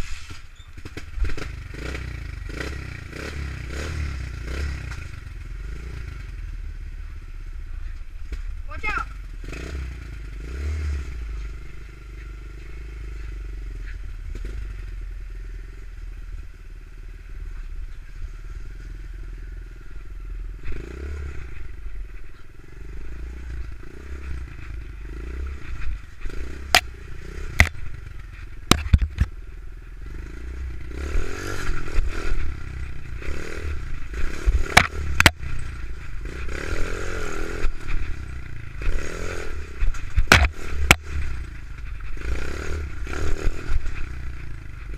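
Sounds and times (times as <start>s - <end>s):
pit bike engine running: 0.8s - 44.9s
sharp knocks and clatter: 25.6s - 29.4s, 34.3s - 35.6s, 39.8s - 42.2s.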